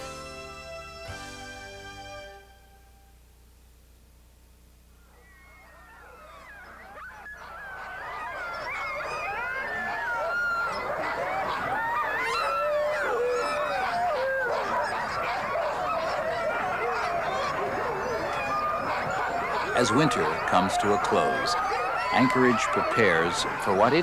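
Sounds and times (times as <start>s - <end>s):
sled dogs yelping barking and howling: 5.1s - 24.0s.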